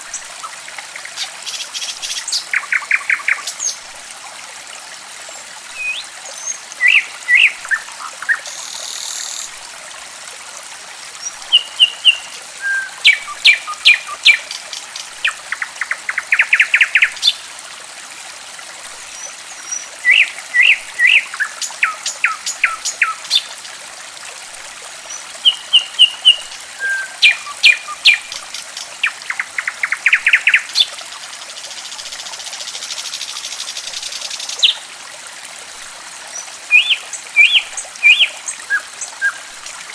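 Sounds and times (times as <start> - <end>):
trickling water: 0.0 - 39.9
songbird chirping and trilling: 25.4 - 28.4, 36.7 - 39.5.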